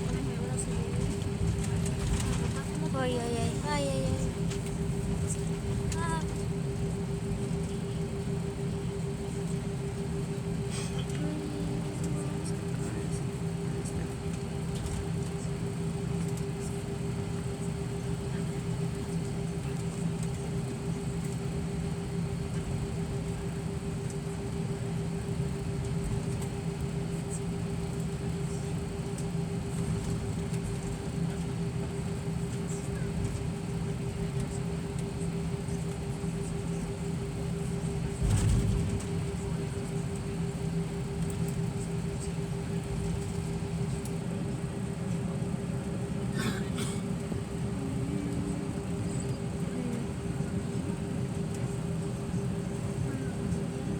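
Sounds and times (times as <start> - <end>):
airliner cabin hum: 0.0 - 53.9.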